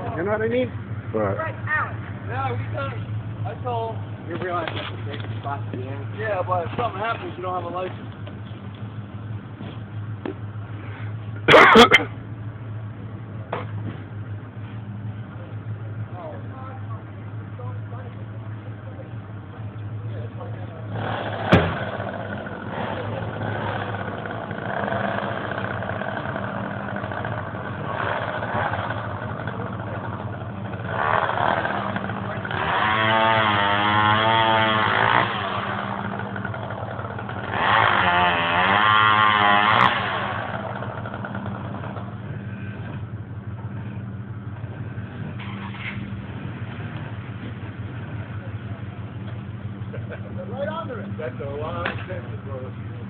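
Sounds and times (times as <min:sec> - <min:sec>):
engine idling: 0:00.0 - 0:53.0
chainsaw revving: 0:20.9 - 0:42.2.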